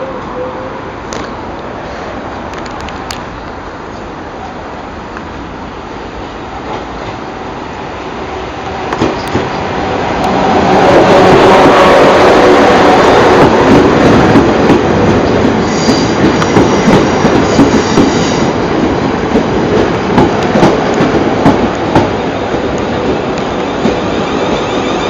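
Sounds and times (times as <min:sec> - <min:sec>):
passenger train passing: 0:00.0 - 0:25.0
high wheel squeal: 0:23.5 - 0:25.0.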